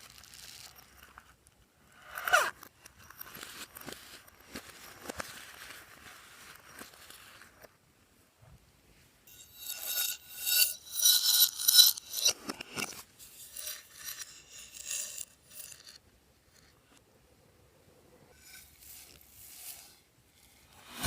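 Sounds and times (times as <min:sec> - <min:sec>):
slime crackling and scraping: 0:00.0 - 0:01.0.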